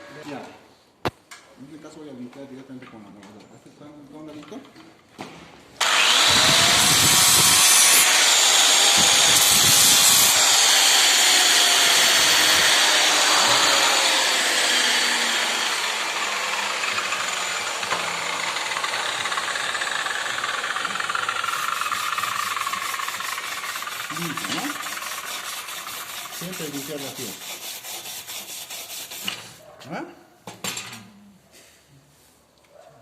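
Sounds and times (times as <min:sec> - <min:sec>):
angle grinder whining on metal: 0:05.8 - 0:27.1.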